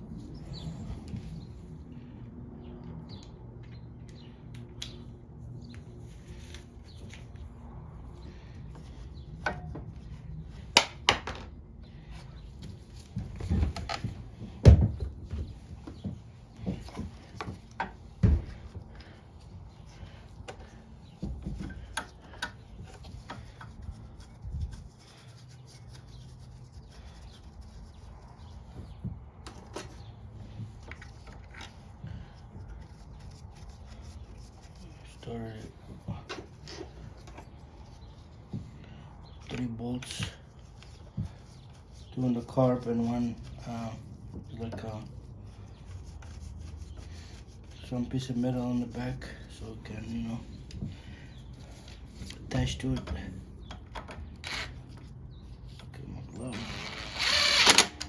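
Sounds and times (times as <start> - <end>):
hand tools clicking and tapping: 20.4 - 23.7.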